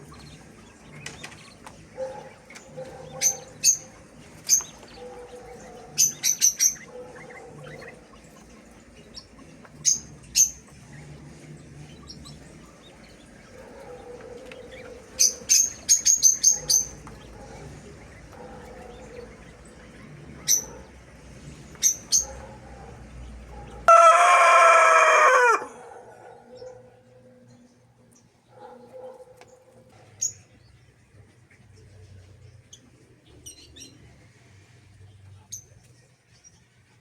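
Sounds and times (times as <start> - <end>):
small birds chirping: 0.0 - 37.0
rooster crowing: 23.8 - 26.2.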